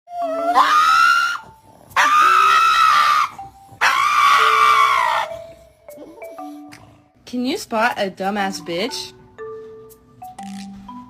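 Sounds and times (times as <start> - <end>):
dog howling high-pitched: 0.1 - 5.5.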